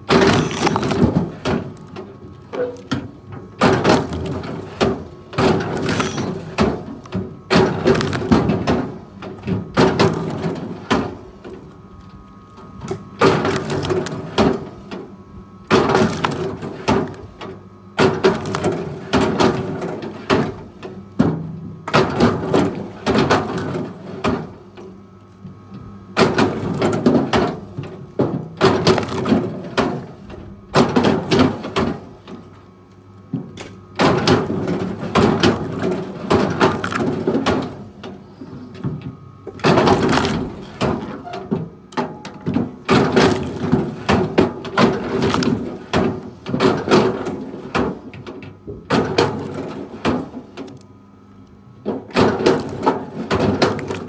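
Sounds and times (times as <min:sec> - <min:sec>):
loud cracking and breaking: 0:00.0 - 0:02.0, 0:05.4 - 0:08.7, 0:13.2 - 0:14.4, 0:15.7 - 0:17.2, 0:18.0 - 0:19.4, 0:28.6 - 0:29.5, 0:34.0 - 0:37.7, 0:39.6 - 0:41.0, 0:42.9 - 0:45.8, 0:52.1 - 0:54.0.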